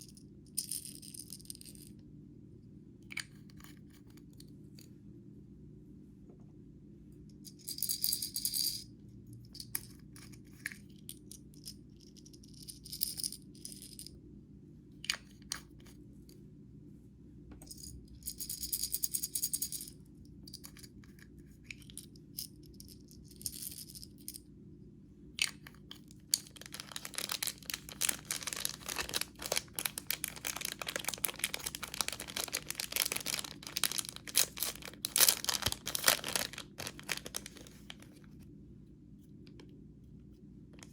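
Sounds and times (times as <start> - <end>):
slime crackling and rattling by hand: 26.2 - 38.2.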